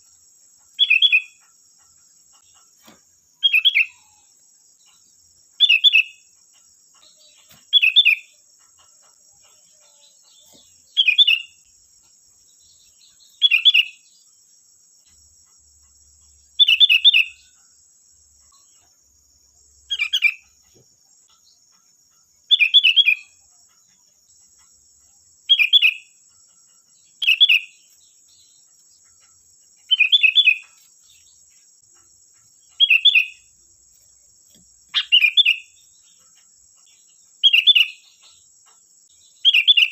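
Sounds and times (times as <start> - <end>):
bulbul whistled song: 5.6 - 6.2, 16.6 - 17.4, 22.5 - 23.3, 25.5 - 26.1, 29.9 - 30.6, 32.8 - 33.4, 35.0 - 35.7, 37.4 - 38.0, 39.4 - 39.9.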